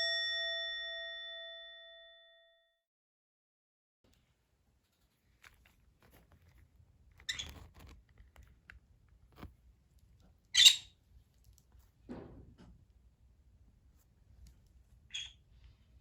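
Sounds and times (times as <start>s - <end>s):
bird chirp: 10.5s - 11.0s, 15.1s - 15.4s
bird squawk: 10.6s - 10.9s, 15.1s - 15.4s.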